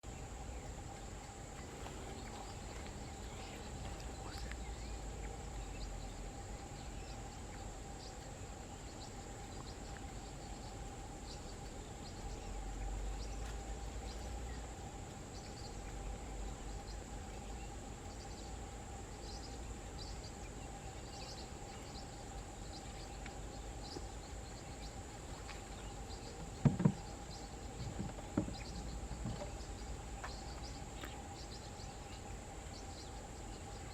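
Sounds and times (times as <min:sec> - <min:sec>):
insects droning: 0:00.0 - 0:33.9
low wind rumble: 0:00.0 - 0:33.9.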